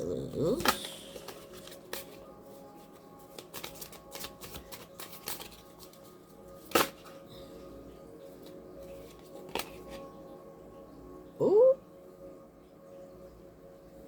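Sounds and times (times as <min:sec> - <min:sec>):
cards being shuffled: 0:00.5 - 0:02.2, 0:03.3 - 0:06.0, 0:09.0 - 0:10.0
card snap: 0:00.6 - 0:02.1.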